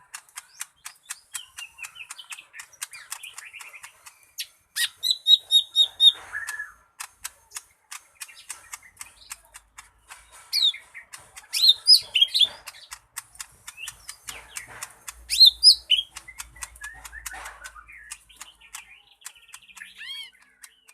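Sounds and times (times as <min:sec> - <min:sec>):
bird clicking notes: 0:00.0 - 0:20.9.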